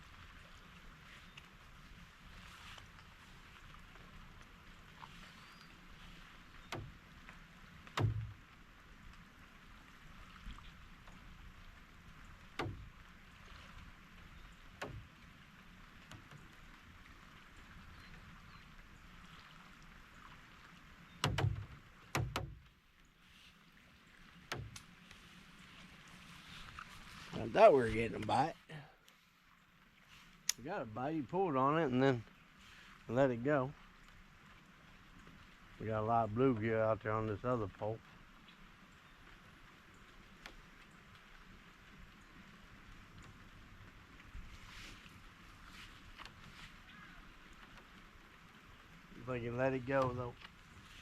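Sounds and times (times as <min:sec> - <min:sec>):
faint outdoor hiss: 0:00.0 - 0:51.0
sharp knocks: 0:08.0 - 0:08.4, 0:12.6 - 0:12.9, 0:21.2 - 0:22.6, 0:24.5 - 0:24.8.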